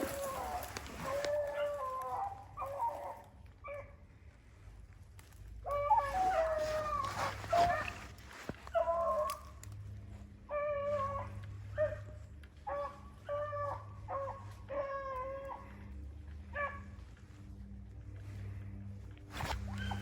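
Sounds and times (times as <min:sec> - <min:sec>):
hounds baying: 0:00.0 - 0:04.1, 0:05.6 - 0:20.0.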